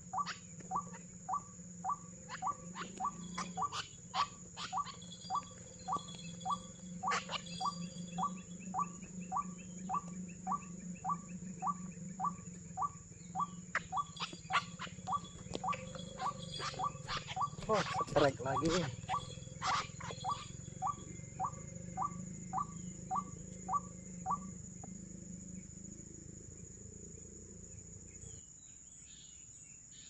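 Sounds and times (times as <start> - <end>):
waterhen kwak calls: 0.1 - 8.3, 12.8 - 24.5.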